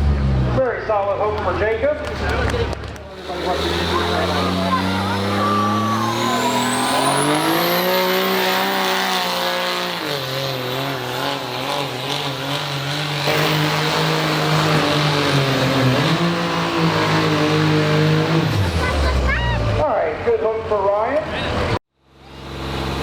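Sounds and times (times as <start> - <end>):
truck engine at full throttle: 0.0 - 23.0
high whistle: 4.4 - 7.7.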